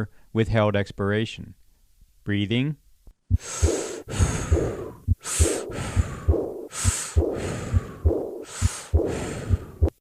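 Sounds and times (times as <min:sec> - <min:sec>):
breath sounds: 0:03.3 - 0:10.0
heartbeat thuds: 0:03.3 - 0:10.0
soft blowing heart murmur: 0:03.3 - 0:10.0.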